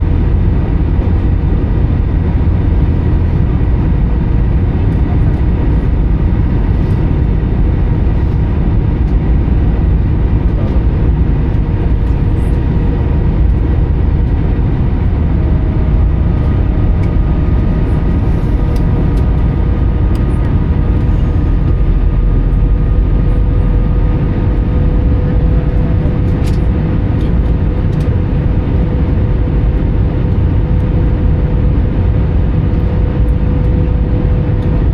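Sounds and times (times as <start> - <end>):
airplane cabin rumble: 0.0 - 34.9
faint steady engine tones: 0.0 - 34.9.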